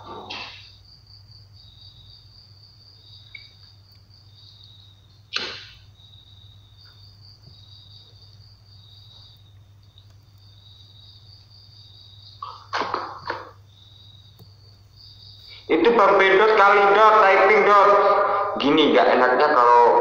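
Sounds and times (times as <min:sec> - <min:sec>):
crickets chirping: 0:00.0 - 0:20.0
sharp knock: 0:05.3 - 0:05.8.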